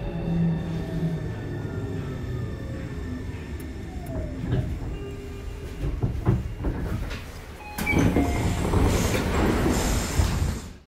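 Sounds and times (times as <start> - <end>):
train low rumble: 0.0 - 10.8
train clunks: 1.4 - 10.8
train doors sliding open: 2.4 - 10.8.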